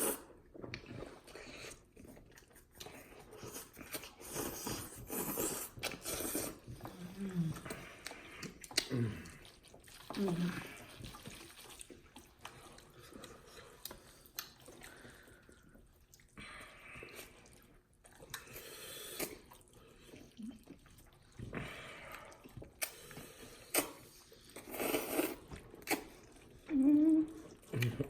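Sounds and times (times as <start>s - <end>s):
chewing: 0.0s - 16.4s, 17.0s - 28.0s
slurping noodles: 0.0s - 16.4s, 17.0s - 28.0s
mouth clicks and smacks: 7.6s - 9.4s, 23.7s - 26.1s, 27.6s - 28.0s.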